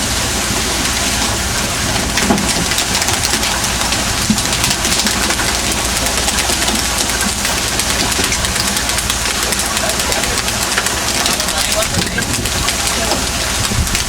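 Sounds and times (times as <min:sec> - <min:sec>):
boat engine running: 0:00.0 - 0:14.0
loud hiss: 0:07.2 - 0:10.2.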